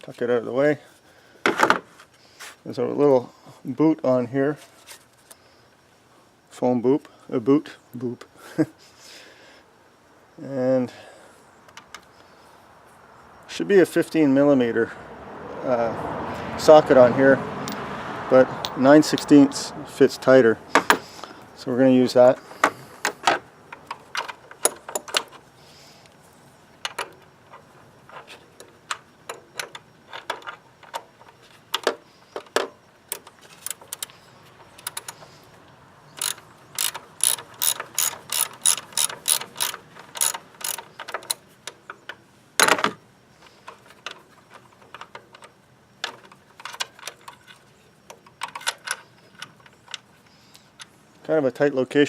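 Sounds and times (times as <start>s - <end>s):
ratchet wrench clicking: 34.8s - 35.3s, 36.1s - 41.4s.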